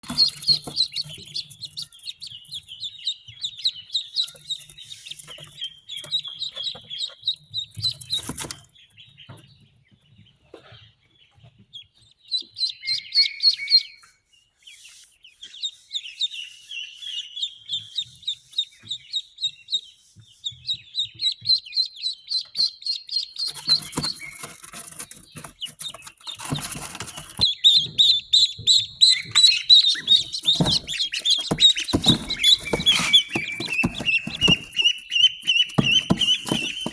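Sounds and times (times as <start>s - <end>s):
rustling: 0.0s - 2.8s, 7.6s - 8.7s, 23.4s - 27.5s, 29.3s - 36.9s
ducklings peeping: 0.0s - 36.9s.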